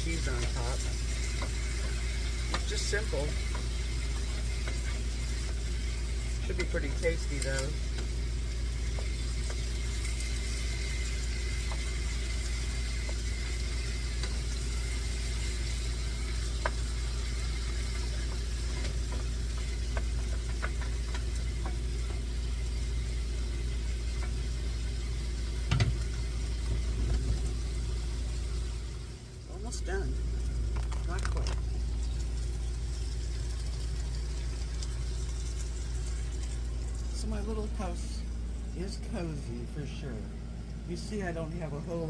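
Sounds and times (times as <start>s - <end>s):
vegetables sizzling in frying pan: 0.0s - 29.5s, 30.1s - 38.6s
steady low hum: 0.0s - 42.0s
utensil clicks stirring: 0.4s - 8.2s.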